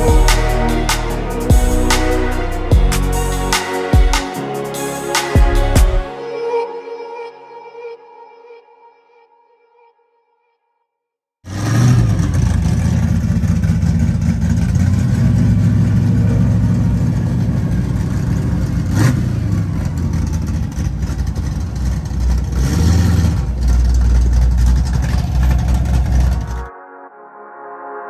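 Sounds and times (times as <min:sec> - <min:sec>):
car engine idling: 0:11.9 - 0:26.7.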